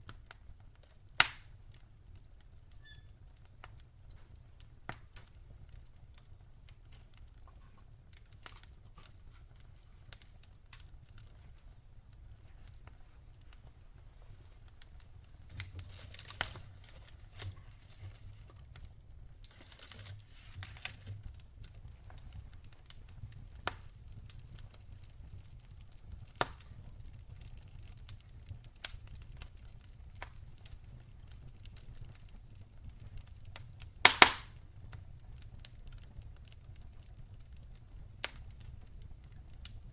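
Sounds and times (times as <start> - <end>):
campfire crackling: 0.0 - 39.9
fire hissing flare-ups: 0.0 - 39.9
loud fire pop: 1.2 - 1.5, 34.0 - 34.6.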